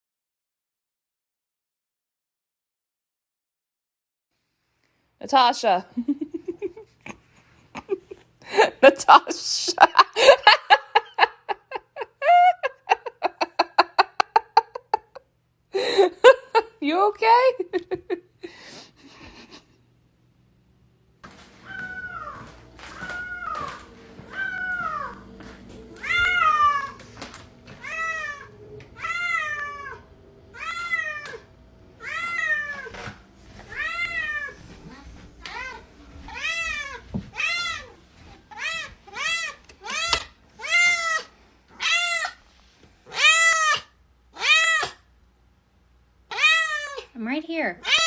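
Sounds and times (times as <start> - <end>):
cat meowing: 21.6 - 25.3, 25.9 - 27.1, 27.7 - 31.4, 32.0 - 33.1, 33.7 - 42.4, 43.1 - 45.0, 46.3 - 47.1.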